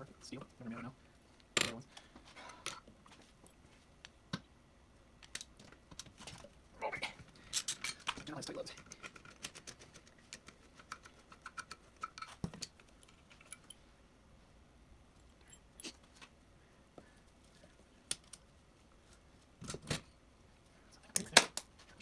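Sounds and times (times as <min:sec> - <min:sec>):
metal parts and tools clinking: 0:07.4 - 0:09.6, 0:11.5 - 0:13.8.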